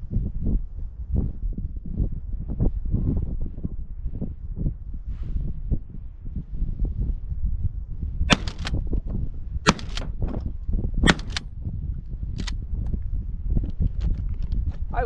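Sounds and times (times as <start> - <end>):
echoing crack: 8.3 - 8.7
shotgun shots: 8.3 - 8.8, 9.7 - 10.2, 11.1 - 11.4.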